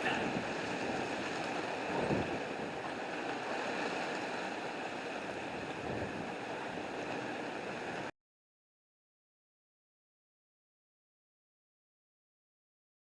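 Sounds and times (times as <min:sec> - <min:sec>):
wind: 0:00.0 - 0:08.1.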